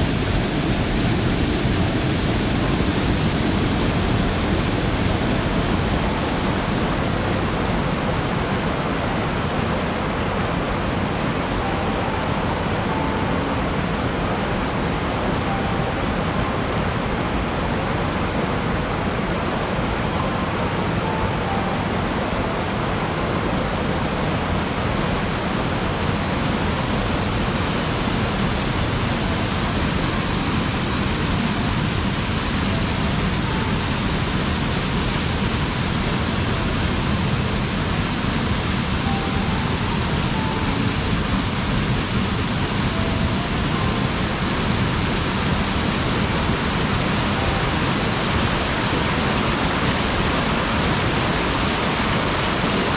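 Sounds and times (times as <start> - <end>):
waterfall rushing: 0.0 - 52.9
faint short high notes: 10.9 - 17.9, 19.7 - 24.5, 36.1 - 48.6.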